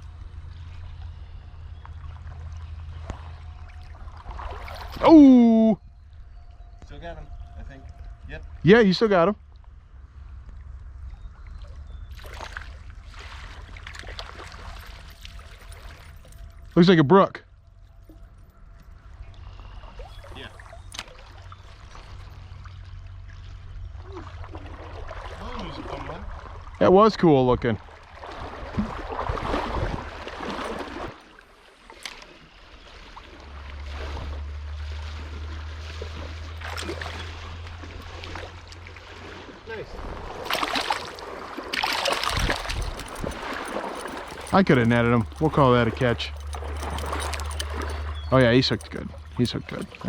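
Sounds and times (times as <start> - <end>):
stream water splashing: 0.0 - 5.7, 11.5 - 17.0, 19.4 - 50.0
low steady rumble: 0.0 - 31.8, 32.4 - 50.0
low wind rumble on microphone: 27.8 - 31.2, 39.8 - 40.5, 42.2 - 50.0.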